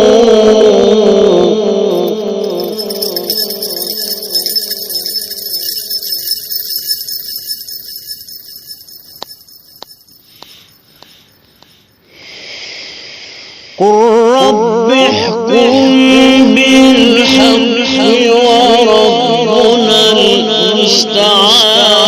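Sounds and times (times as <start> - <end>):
man reciting with echo: 13.8 - 22.0.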